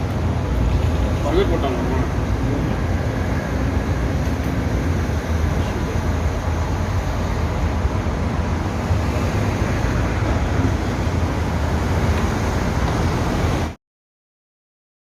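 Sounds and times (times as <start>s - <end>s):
low rumbling outdoor noise: 0.0s - 13.8s.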